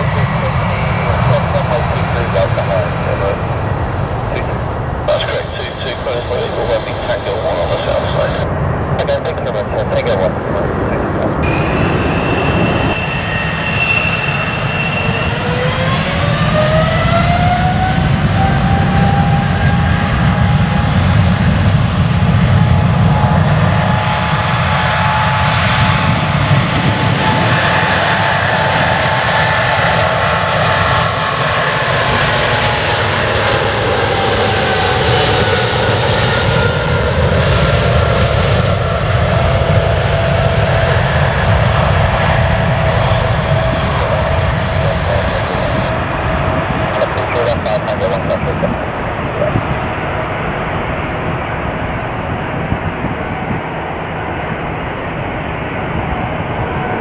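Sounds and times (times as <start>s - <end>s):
jet engine whine: 0.0s - 57.0s
jet engines rumbling: 0.0s - 57.0s.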